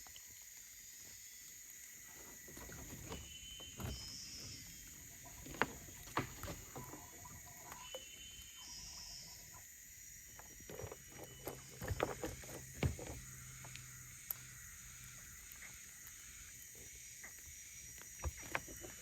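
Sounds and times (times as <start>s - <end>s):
high-pitched insect drone: 6.6s - 19.0s.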